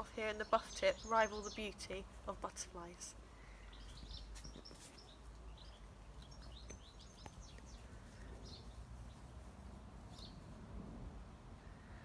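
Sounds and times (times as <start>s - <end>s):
steady low rumble: 5.3s - 12.0s.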